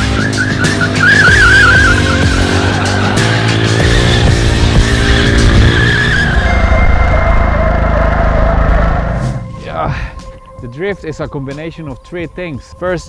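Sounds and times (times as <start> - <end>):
motorcycle engine running hard: 0.0 - 6.8
motorcycle tire squealing: 0.0 - 9.4.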